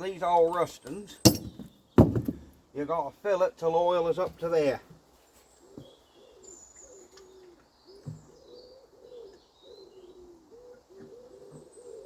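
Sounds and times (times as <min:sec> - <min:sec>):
small birds chirping faintly: 0:00.0 - 0:12.0
pigeon cooing: 0:05.6 - 0:12.0.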